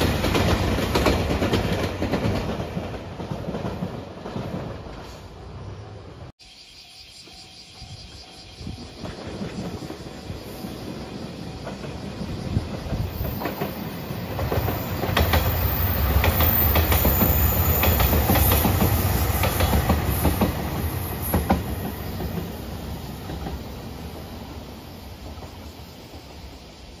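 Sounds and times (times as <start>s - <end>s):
wheels clacking over rail joints: 11.5s - 23.7s.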